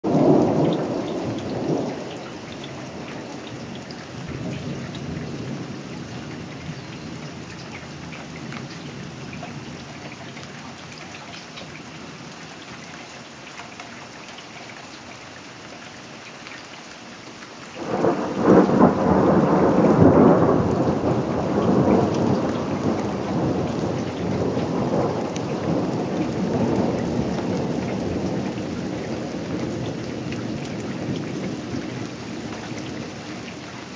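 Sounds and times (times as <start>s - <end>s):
rain falling steadily: 0.0s - 33.9s
thunder rumbling: 0.1s - 2.1s, 17.8s - 33.9s
loud close thunder clap: 17.8s - 31.5s.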